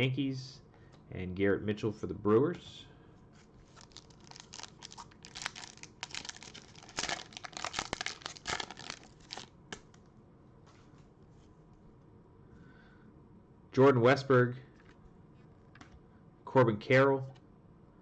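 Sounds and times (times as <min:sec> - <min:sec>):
foil wrapper tearing and crinkling: 0:03.7 - 0:09.9.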